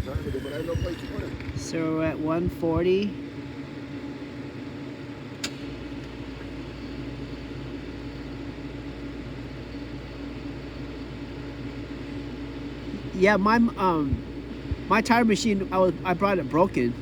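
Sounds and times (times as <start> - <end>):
deep low rumble: 0.0 - 2.9
refrigerant recovery machine humming: 0.0 - 17.0.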